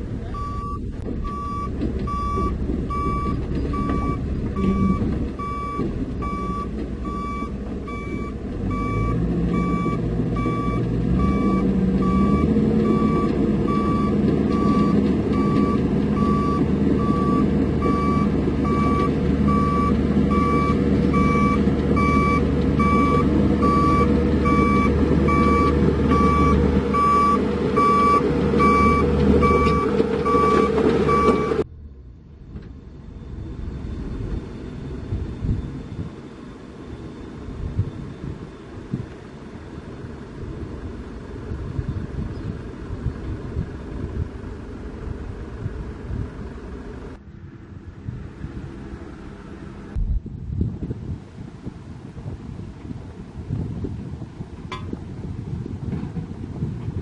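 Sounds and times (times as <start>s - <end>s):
diesel engine revving: 0.0s - 50.0s
reversing alarm beeping: 0.3s - 31.6s.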